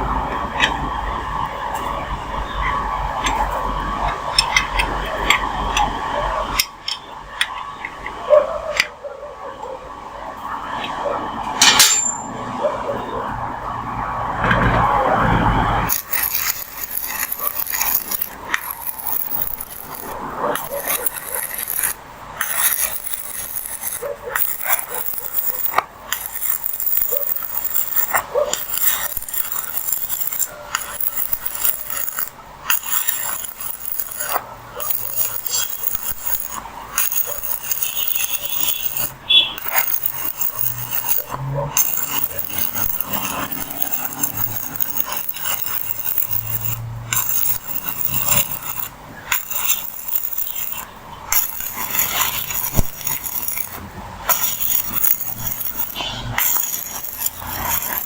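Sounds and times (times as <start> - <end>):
scraping on metal: 15.7 - 58.0.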